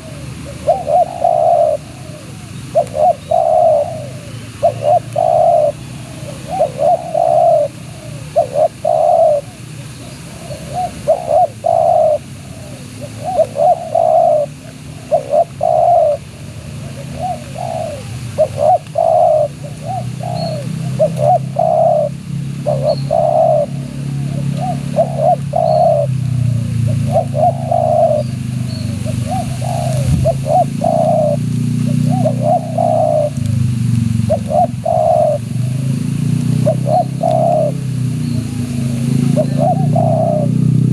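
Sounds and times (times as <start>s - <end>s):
dove cooing: 0.0s - 33.5s, 34.2s - 40.9s.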